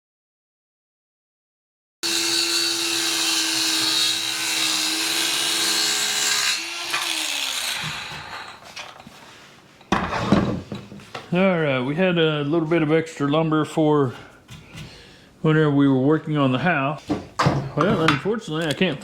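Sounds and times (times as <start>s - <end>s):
electric saw cutting wood: 2.0s - 8.6s.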